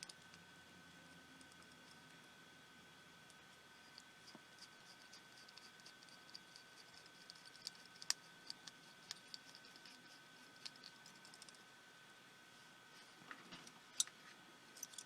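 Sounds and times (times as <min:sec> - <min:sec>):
faint high-pitched hum: 0:00.0 - 0:15.0
screwdriver and metal parts clicking: 0:14.8 - 0:15.0.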